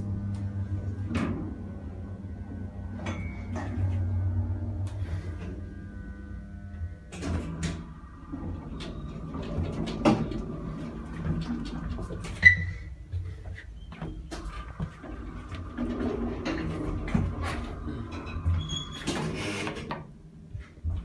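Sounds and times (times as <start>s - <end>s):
elevator motor hum and whine: 0.0s - 21.0s
high elevator ding: 3.0s - 3.8s.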